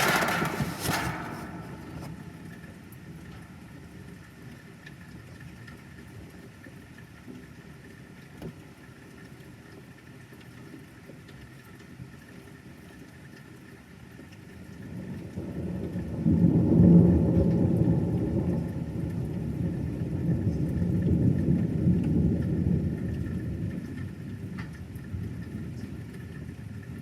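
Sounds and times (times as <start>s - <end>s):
rolling thunder: 0.0s - 4.2s, 14.9s - 24.5s.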